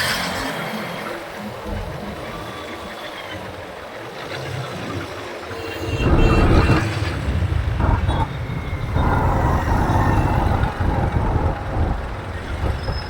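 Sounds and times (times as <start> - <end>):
road noise from motorbike: 5.5 - 13.0
loud low rumble: 5.8 - 13.0.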